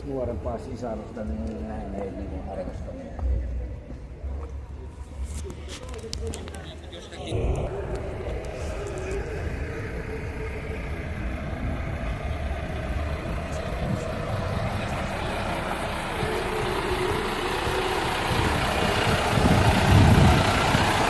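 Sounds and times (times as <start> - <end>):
heavy truck engine running: 6.8 - 21.0.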